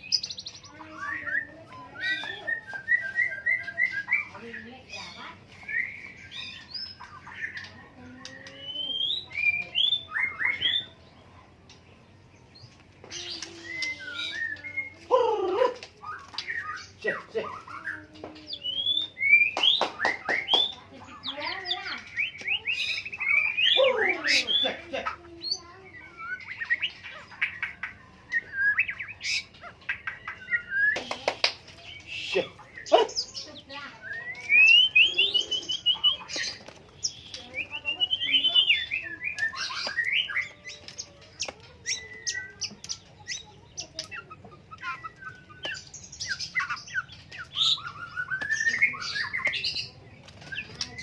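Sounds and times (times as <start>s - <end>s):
bird singing whistled phrases: 0.0s - 4.4s, 8.2s - 11.0s, 13.1s - 15.1s, 16.0s - 20.8s, 25.4s - 31.2s, 31.9s - 51.0s.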